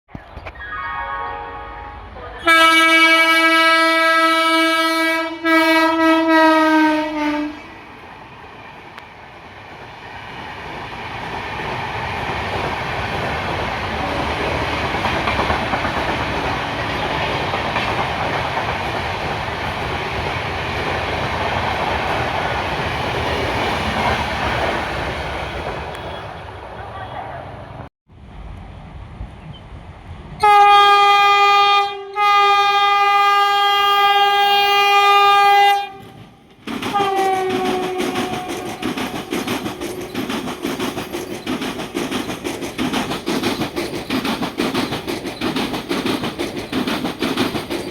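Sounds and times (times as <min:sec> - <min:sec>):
train running past: 0:00.4 - 0:47.9
train horn blasts: 0:00.8 - 0:07.8, 0:30.4 - 0:36.2, 0:36.9 - 0:38.9.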